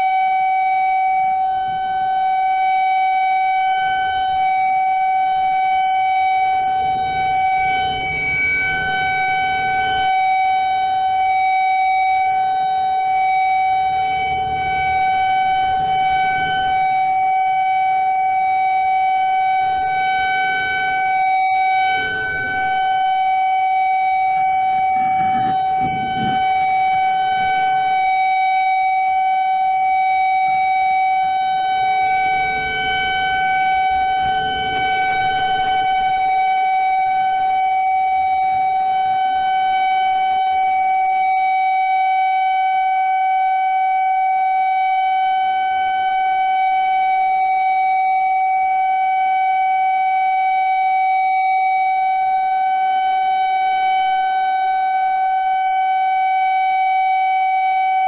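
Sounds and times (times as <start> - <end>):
civil defense siren steady pitch: 0.0 - 58.0
low rumbling noise: 12.1 - 40.4.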